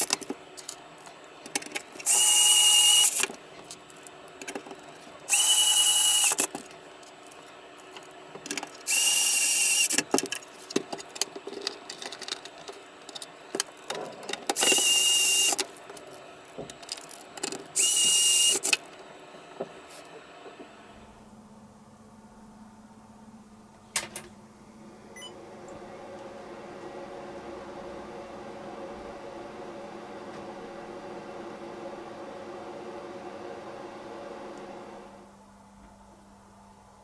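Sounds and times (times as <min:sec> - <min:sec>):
small clicks and handling noise: 0:00.0 - 0:20.6
small electric tool whining: 0:02.0 - 0:03.4, 0:05.2 - 0:06.7, 0:08.8 - 0:10.2, 0:14.5 - 0:18.9.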